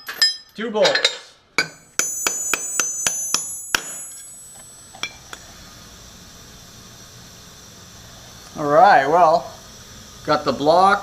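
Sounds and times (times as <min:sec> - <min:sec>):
hammer blows on steel: 0:01.6 - 0:05.2
low steady hum: 0:01.6 - 0:08.7.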